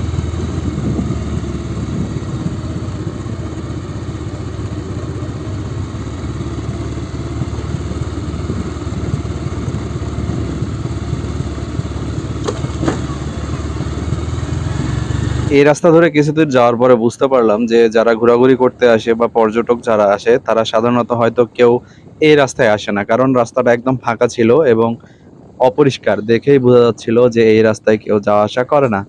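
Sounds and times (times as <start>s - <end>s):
motorcycle engine running: 0.0s - 15.8s
road noise: 0.0s - 29.0s.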